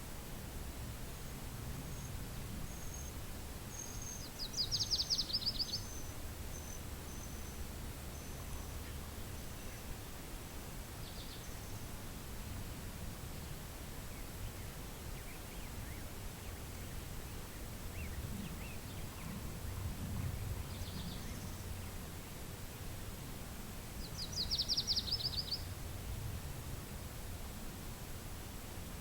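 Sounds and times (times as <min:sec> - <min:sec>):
wind rumbling on microphone: 0:00.0 - 0:29.0
faint bird chirps: 0:01.9 - 0:10.0, 0:10.7 - 0:11.9, 0:24.0 - 0:26.2.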